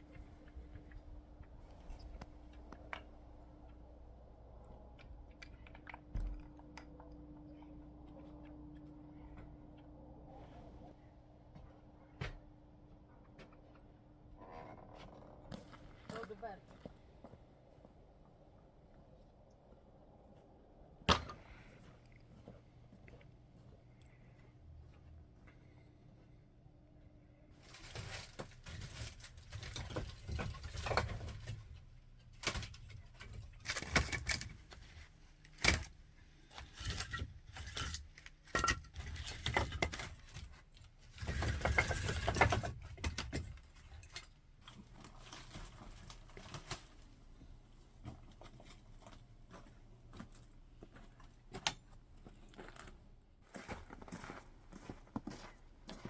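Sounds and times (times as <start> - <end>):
objects clattering and rustling: 27.5 - 47.3.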